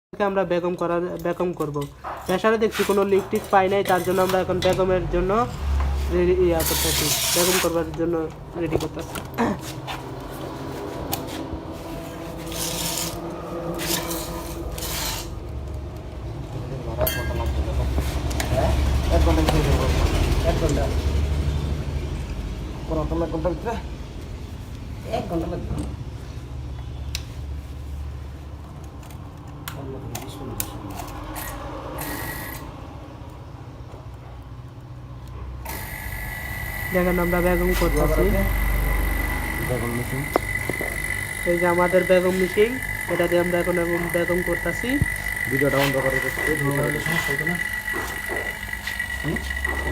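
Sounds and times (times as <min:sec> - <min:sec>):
hoses rubbing and scraping: 0:05.9 - 0:07.9, 0:09.6 - 0:15.5
vacuum pump humming: 0:35.6 - 0:49.9.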